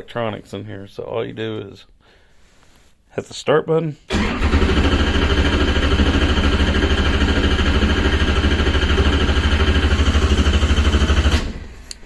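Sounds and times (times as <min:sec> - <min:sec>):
race car engine idling: 0:04.4 - 0:11.4.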